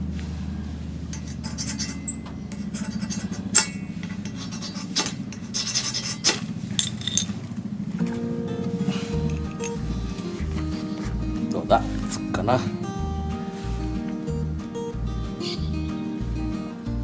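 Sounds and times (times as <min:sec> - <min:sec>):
low steady hum: 0:00.0 - 0:17.0
metal scraping and rubbing: 0:01.0 - 0:07.4, 0:08.8 - 0:14.2.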